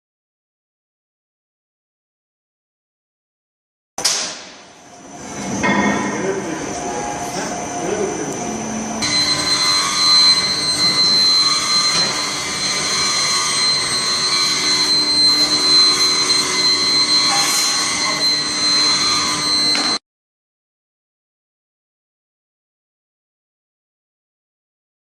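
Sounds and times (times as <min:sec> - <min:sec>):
furnace high-pitched whine: 0:04.0 - 0:20.0.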